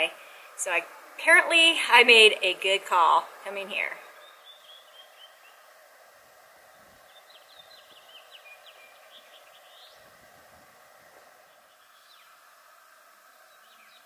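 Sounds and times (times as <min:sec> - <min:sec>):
faint bird chirps: 0:04.0 - 0:05.7, 0:06.7 - 0:10.1, 0:11.5 - 0:12.4, 0:13.3 - 0:14.0.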